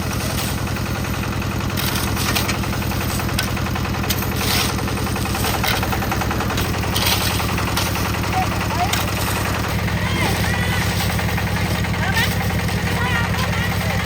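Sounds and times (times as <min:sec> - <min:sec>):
concrete mixer engine knocking: 0:00.0 - 0:14.0.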